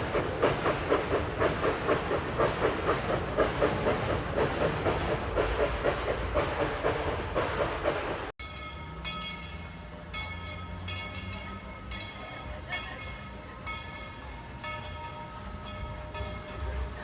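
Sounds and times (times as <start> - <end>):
train bell ringing: 8.4 - 17.0.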